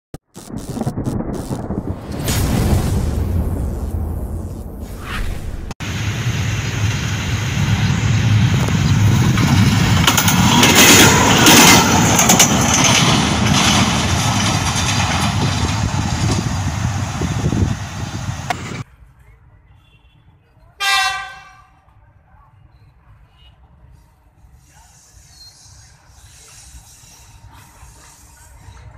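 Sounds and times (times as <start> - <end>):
diesel train rumbling and clattering: 5.8 - 18.9
locomotive horn blast: 20.8 - 21.8.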